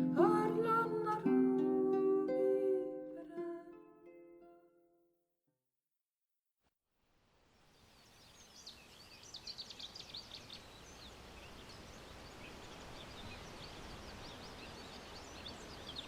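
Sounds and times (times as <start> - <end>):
small birds chirping: 7.6 - 16.0.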